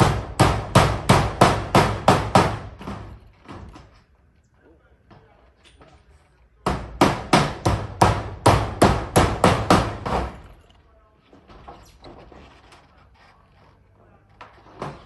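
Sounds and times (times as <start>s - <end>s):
hammer striking nail into metal: 0.0s - 3.2s, 6.6s - 10.6s.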